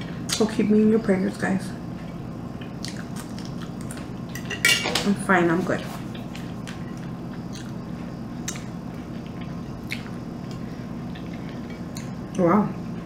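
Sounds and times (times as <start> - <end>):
steady low hum: 0.0 - 13.0
person chewing food: 2.6 - 4.2, 6.1 - 12.2.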